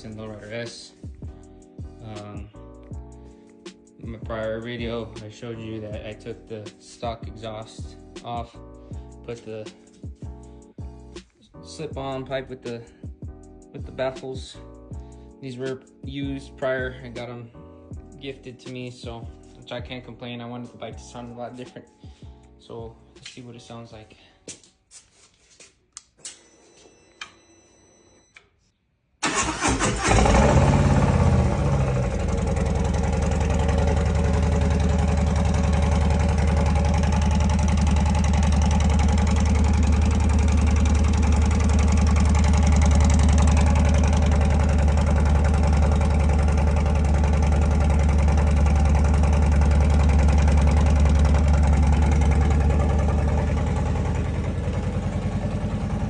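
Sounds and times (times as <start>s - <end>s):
motorcycle starter turning over: 29.2s - 33.4s
motorcycle engine idling: 30.1s - 56.0s.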